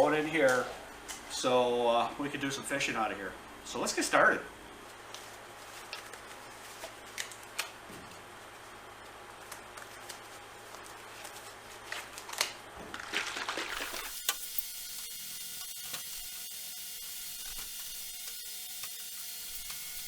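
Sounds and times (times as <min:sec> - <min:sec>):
wet squishy rubbing: 0:12.9 - 0:14.1.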